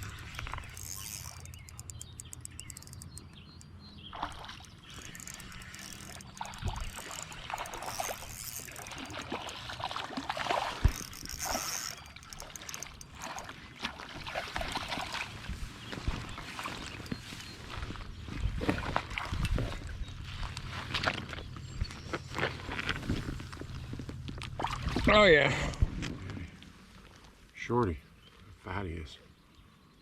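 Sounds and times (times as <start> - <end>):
rapid even ticking: 0.0 - 3.8, 4.5 - 9.7, 10.8 - 13.5
river water splashing: 0.0 - 25.4.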